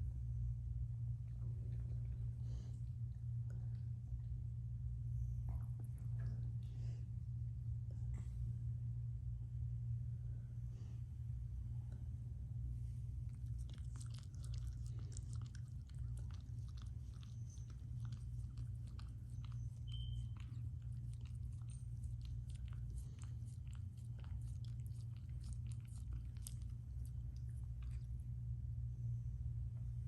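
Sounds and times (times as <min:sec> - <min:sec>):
steady low hum: 0:00.0 - 0:30.0
dog chewing and crunching food: 0:13.2 - 0:28.4.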